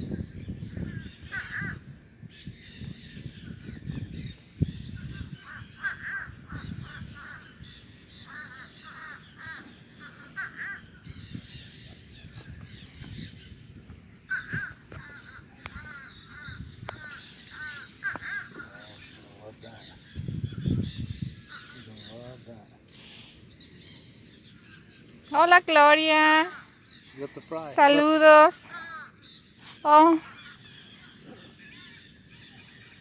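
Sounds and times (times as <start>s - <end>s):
crows cawing: 0.7s - 1.9s, 4.9s - 11.2s, 14.2s - 20.8s, 21.4s - 22.2s, 25.4s - 32.7s.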